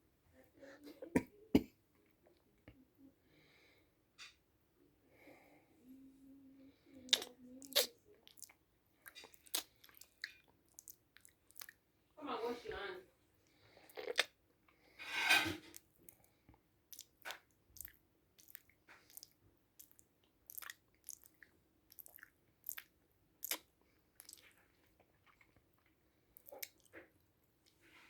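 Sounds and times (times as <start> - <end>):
person chewing crunchy food: 7.0 - 11.8, 13.8 - 14.4, 16.9 - 27.8.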